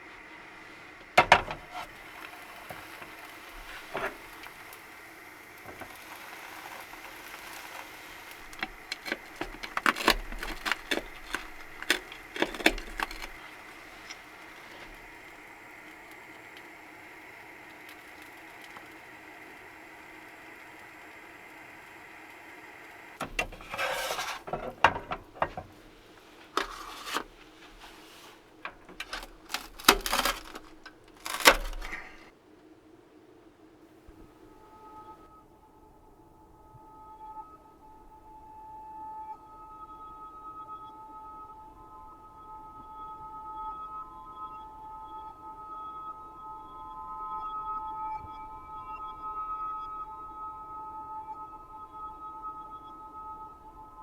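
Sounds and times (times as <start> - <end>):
faint steady hum: 0.0 - 54.0
small objects clicking and rattling: 5.5 - 15.1, 28.6 - 32.3.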